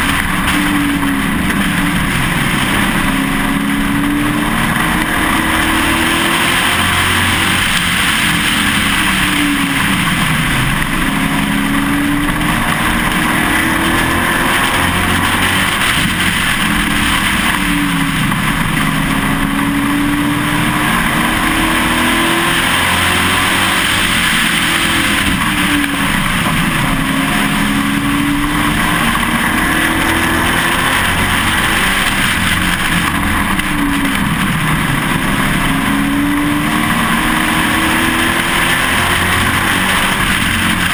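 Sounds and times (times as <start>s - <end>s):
race truck engine revving: 0.0s - 40.9s
wind and road noise: 0.0s - 40.9s.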